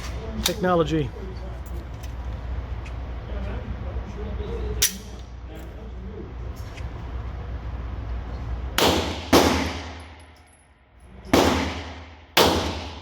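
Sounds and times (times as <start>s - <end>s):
low steady hum: 0.0s - 13.0s
pistol shots with ringing echo: 8.8s - 10.2s, 11.3s - 13.0s.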